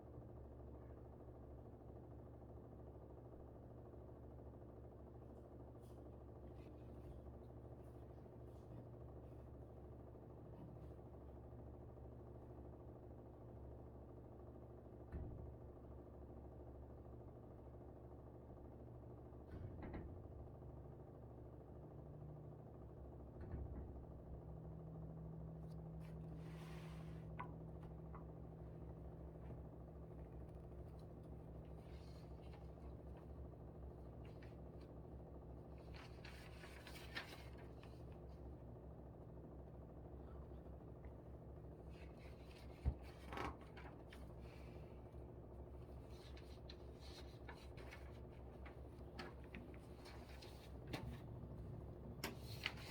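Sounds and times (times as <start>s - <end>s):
air conditioner humming: 24.0s - 52.9s.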